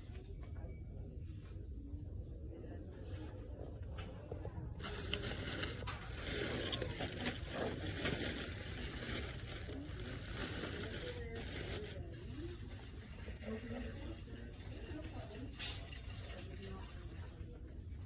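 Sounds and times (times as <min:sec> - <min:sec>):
faint voices: 0:00.0 - 0:18.0
rustling and crinkling: 0:04.0 - 0:14.2.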